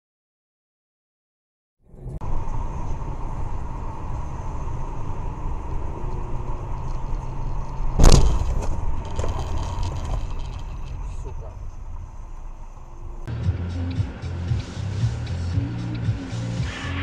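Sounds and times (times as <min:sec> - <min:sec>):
car road and engine rumble: 0:01.8 - 0:17.0
collision impact bang: 0:07.9 - 0:09.3.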